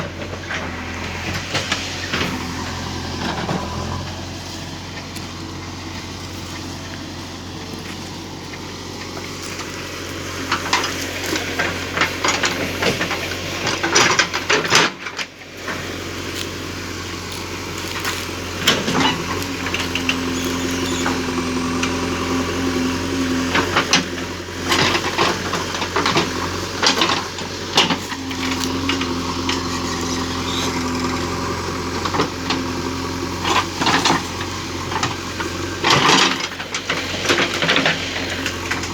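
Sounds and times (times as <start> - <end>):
digging machine engine running: 0.0 - 38.9
knocks and rattles in soil: 0.0 - 38.9.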